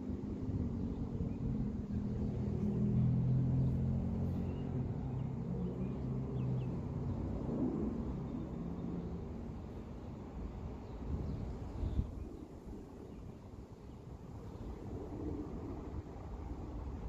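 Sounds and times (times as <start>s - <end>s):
vehicle engine humming: 0.0s - 8.8s.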